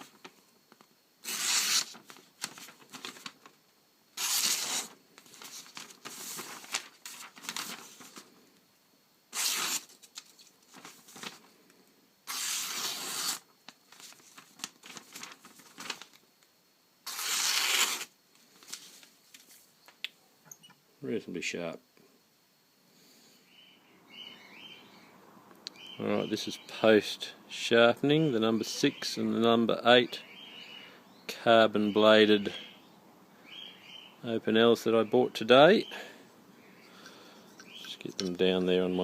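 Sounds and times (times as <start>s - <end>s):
paper rustling and crinkling: 0.0s - 3.6s, 4.2s - 8.3s, 9.4s - 11.5s, 12.3s - 16.2s, 17.1s - 19.7s
knife slicing paper: 1.2s - 3.3s, 4.2s - 8.2s, 9.3s - 11.3s, 12.3s - 13.4s, 17.0s - 18.1s.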